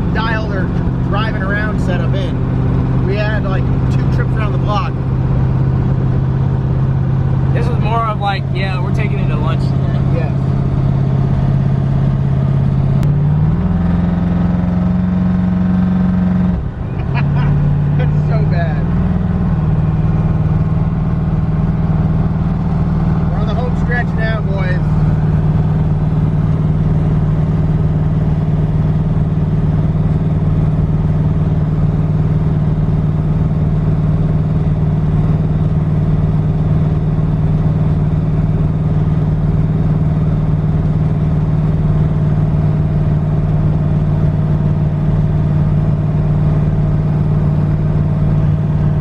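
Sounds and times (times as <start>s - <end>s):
car exhaust droning from inside: 0.0s - 49.0s.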